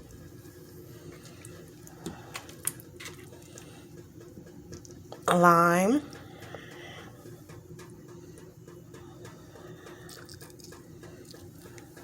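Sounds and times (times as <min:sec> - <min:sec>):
faint steady hum: 0:00.0 - 0:12.0
small drips and ticks: 0:07.4 - 0:12.0.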